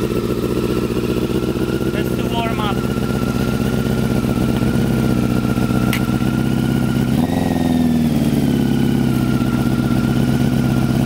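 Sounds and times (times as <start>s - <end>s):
motorcycle engine idling and revving: 0.0s - 11.0s.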